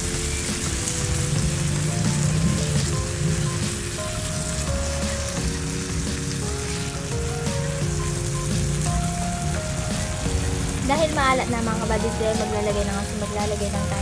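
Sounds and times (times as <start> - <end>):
background music held notes: 0.0 - 14.0
meat and onions sizzling: 0.0 - 14.0.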